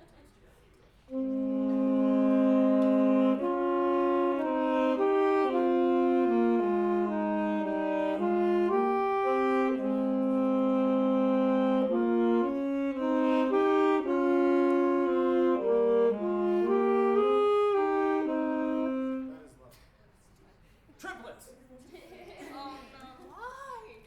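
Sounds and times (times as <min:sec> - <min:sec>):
wind band playing slow harmony: 0:01.1 - 0:19.5.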